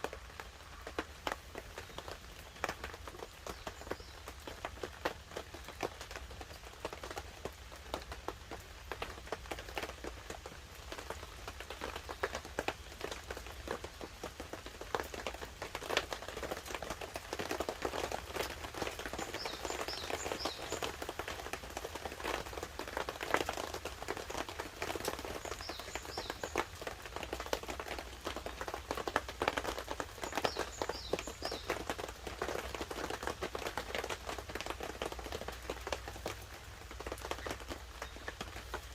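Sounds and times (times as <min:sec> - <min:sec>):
light rain pattering on tarp: 0:00.0 - 0:38.9
bird chirping: 0:19.2 - 0:20.9, 0:30.3 - 0:31.7.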